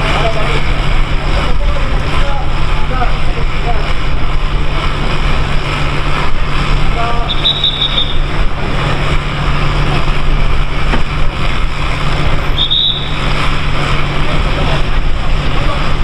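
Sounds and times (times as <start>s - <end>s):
loud rushing noise: 0.0s - 16.0s
low mechanical hum: 0.0s - 16.0s
high squeal: 7.2s - 8.4s, 12.5s - 13.4s.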